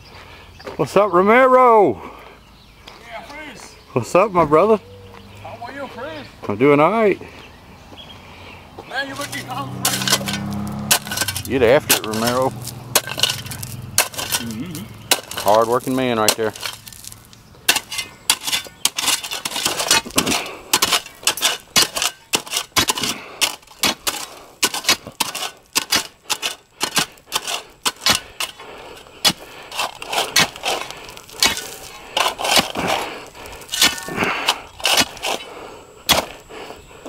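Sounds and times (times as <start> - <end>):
hand tools scraping and knocking: 9.1 - 36.5.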